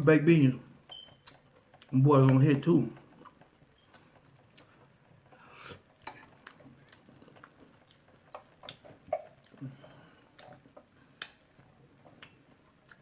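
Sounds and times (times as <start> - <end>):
chewing: 3.0 - 13.0
lip smacks: 5.6 - 13.0.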